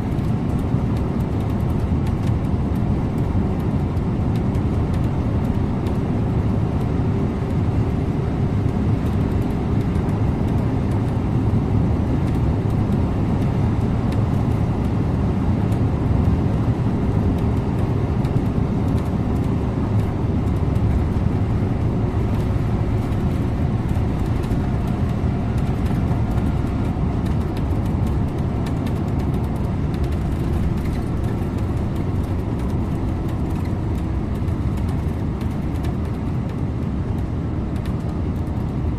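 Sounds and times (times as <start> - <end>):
bus engine running: 0.0 - 38.9
road and tyre noise: 0.0 - 38.9.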